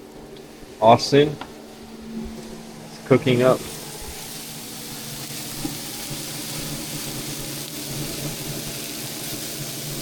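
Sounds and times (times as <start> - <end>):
chicken and onions sizzling: 3.2 - 10.0.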